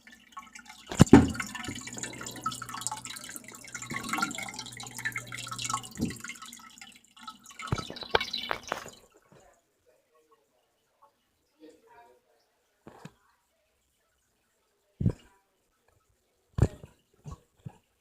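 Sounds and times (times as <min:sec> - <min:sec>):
water dripping and splashing: 0:00.0 - 0:09.5.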